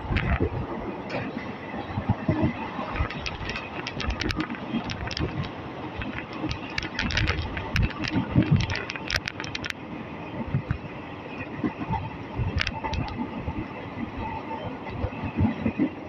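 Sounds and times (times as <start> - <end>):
sharp clicks and rattles: 0.0 - 0.5, 2.5 - 9.8, 12.4 - 13.2
train rumble: 0.0 - 16.0.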